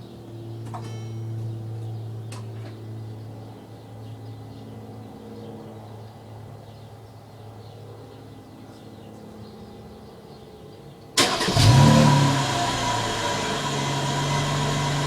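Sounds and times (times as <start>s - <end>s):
car engine idling: 11.2s - 15.0s.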